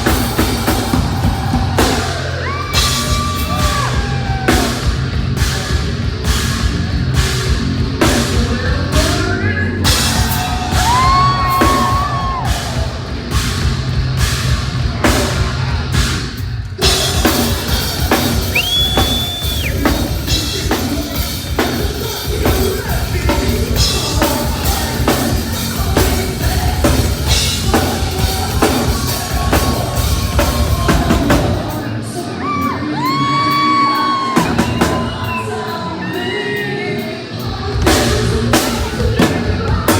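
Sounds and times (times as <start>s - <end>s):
drum kit hitting rapidly: 0.0s - 31.9s, 37.4s - 39.9s
heavy metal band playing: 0.0s - 39.9s
person singing: 8.0s - 13.1s, 16.8s - 39.9s.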